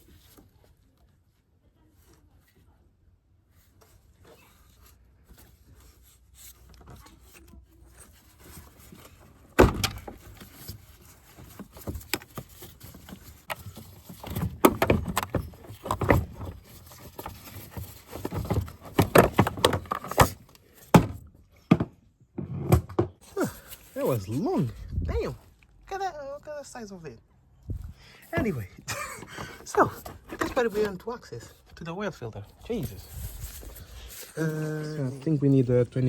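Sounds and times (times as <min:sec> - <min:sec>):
plastic knocks clunks and rattles: 0:08.8 - 0:23.2, 0:28.4 - 0:31.0.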